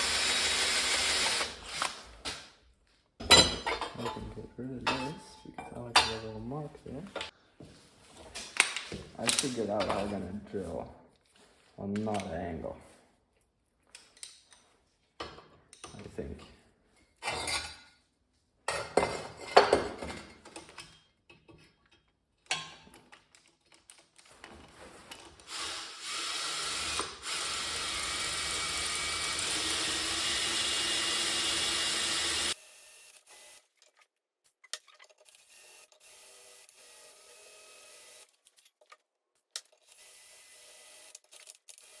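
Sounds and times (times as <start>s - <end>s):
electric drill boring: 0.0s - 2.0s, 25.5s - 33.6s, 35.4s - 38.3s, 39.8s - 41.2s
parts knocking and clattering: 18.7s - 25.4s.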